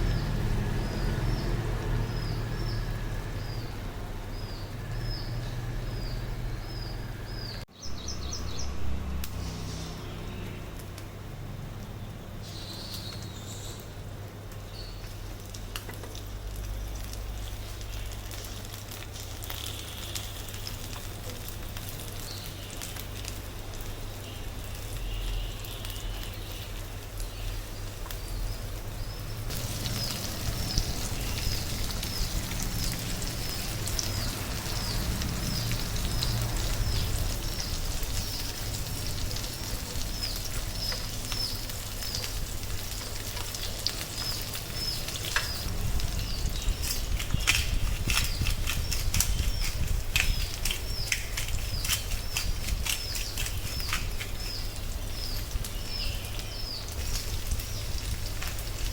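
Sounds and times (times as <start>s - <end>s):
meat sizzling in a pan: 16.9s - 51.2s, 53.1s - 58.9s.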